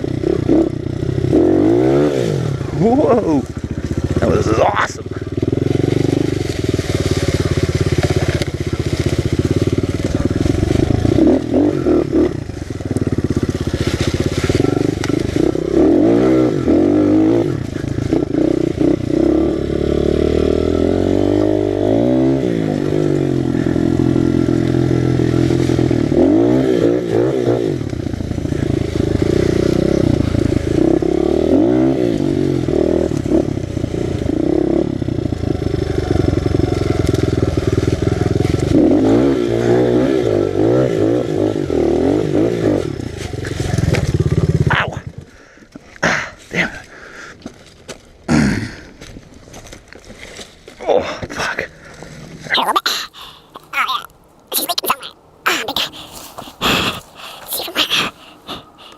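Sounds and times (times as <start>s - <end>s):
motorbike engine revving: 0.0s - 45.3s.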